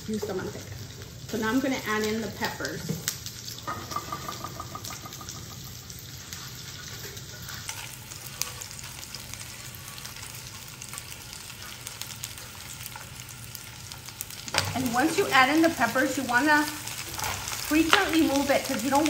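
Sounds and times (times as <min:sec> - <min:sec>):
onions and chiles sizzling: 0:00.0 - 0:19.0.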